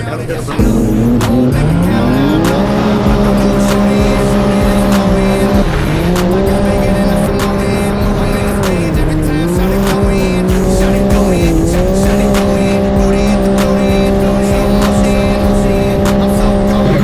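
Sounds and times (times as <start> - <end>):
music: 0.0 - 17.0
race engine revving: 0.0 - 17.0.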